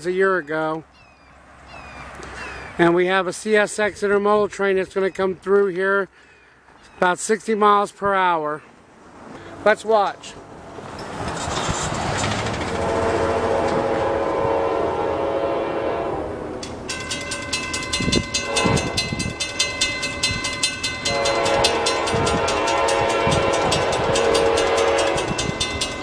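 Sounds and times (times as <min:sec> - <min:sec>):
train wheels thudding over rails: 0:10.4 - 0:15.4
locomotive horn blasts: 0:12.6 - 0:26.0
high metallic ringing: 0:16.6 - 0:26.0.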